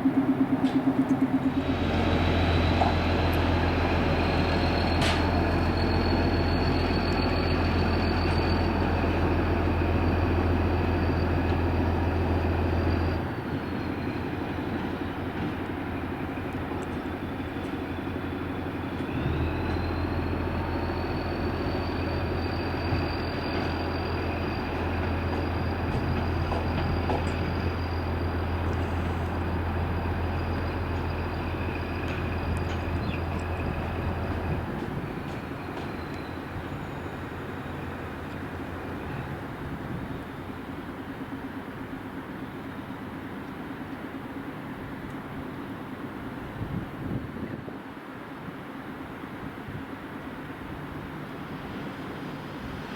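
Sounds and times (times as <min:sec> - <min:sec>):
high whine: 0:00.0 - 0:07.3
train electrical hum: 0:00.0 - 0:52.9.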